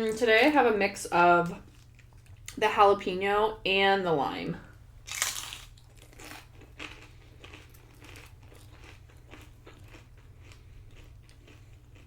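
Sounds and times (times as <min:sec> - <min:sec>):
steady low hum: 0:00.0 - 0:12.0
chewing crunchy tortilla chips: 0:05.0 - 0:12.0.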